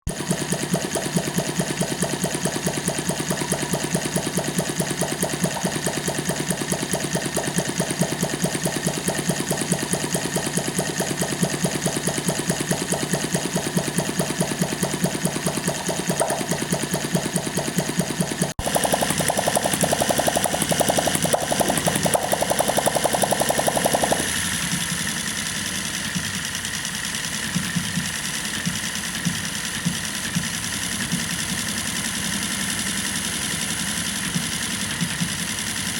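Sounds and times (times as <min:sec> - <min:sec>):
hit-and-miss engine firing: 0:00.1 - 0:25.5.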